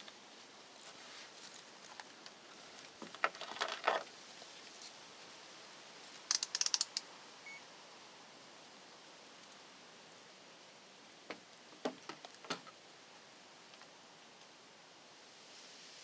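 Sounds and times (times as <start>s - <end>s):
small objects clicking and knocking: 3.0s - 4.1s, 6.3s - 7.1s.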